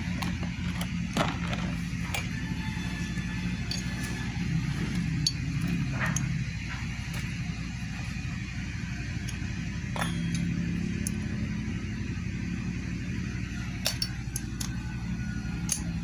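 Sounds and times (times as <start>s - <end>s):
steady low hum: 0.0s - 16.0s
metallic clinks of hand tools: 3.6s - 4.2s, 15.5s - 16.0s.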